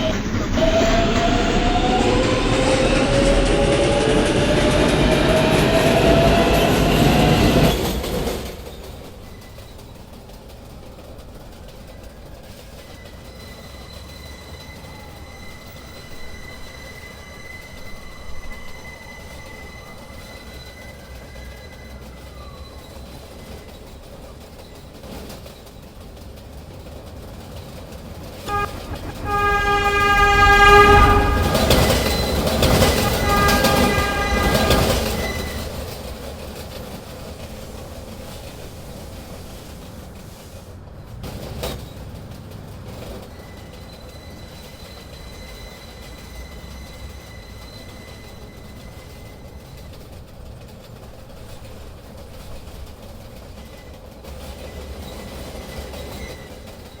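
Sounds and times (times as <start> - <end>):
train horn: 0.0 - 7.7, 28.4 - 36.2
rush of wheel and track noise: 0.0 - 10.3, 26.4 - 57.0
subway train rumbling: 0.0 - 57.0.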